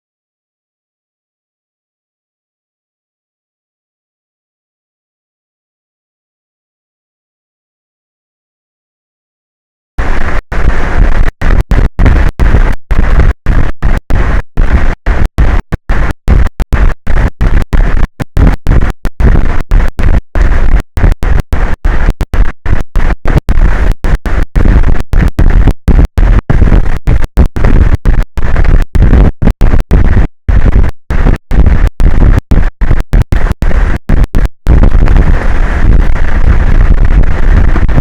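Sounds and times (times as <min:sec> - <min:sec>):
loud rough distorted noise: 0:10.0 - 0:38.0.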